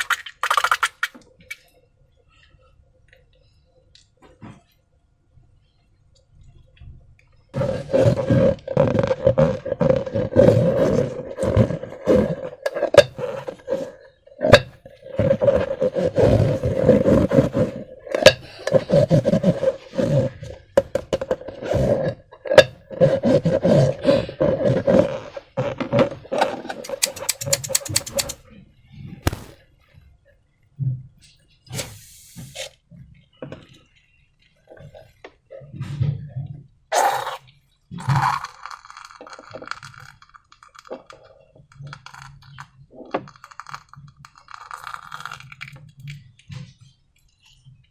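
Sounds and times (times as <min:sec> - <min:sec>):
squeaky squelching balloon and slime: 0:07.6 - 0:20.6, 0:21.4 - 0:28.4, 0:29.2 - 0:29.6.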